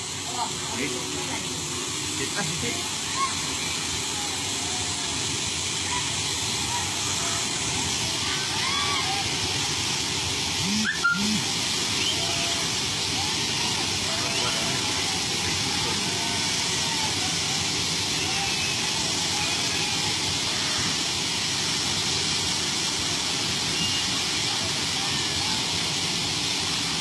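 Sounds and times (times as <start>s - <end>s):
faint voices: 0.0s - 21.6s
train hissing rush: 0.0s - 27.0s.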